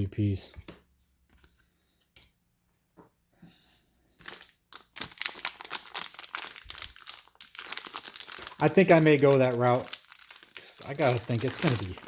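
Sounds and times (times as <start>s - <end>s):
plastic wrapper crinkling and tearing: 4.2s - 12.0s.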